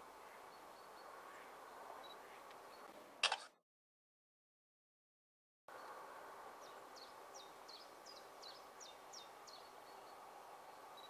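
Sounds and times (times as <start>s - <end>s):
faint outdoor background hiss: 0.0s - 3.6s, 5.7s - 11.0s.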